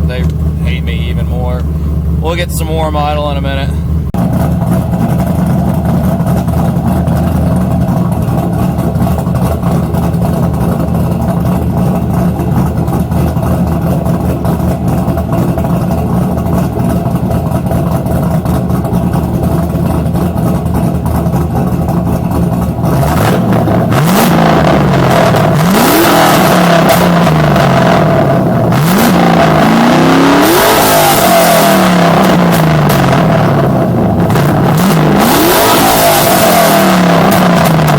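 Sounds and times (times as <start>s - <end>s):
car engine choppy idle: 0.0s - 30.4s, 31.3s - 35.4s
engine revving blips: 22.8s - 37.9s.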